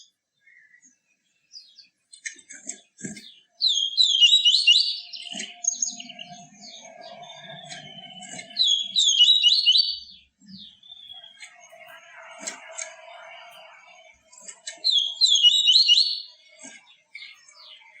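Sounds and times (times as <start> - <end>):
bird whistling song: 3.6 - 12.6, 14.4 - 18.0.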